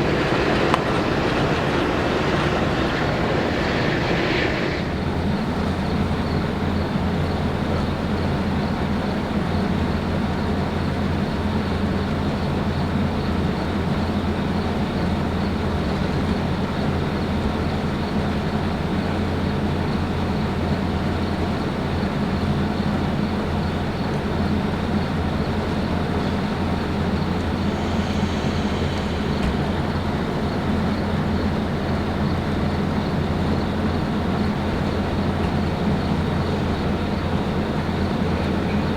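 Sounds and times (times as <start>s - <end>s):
low engine drone: 0.0s - 7.3s, 25.6s - 38.9s
train rumbling: 0.0s - 9.0s, 10.0s - 38.9s.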